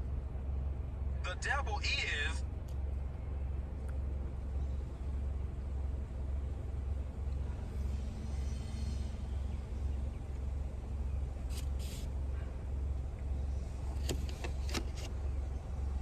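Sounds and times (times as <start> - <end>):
car cabin rumble: 9.4 - 16.0.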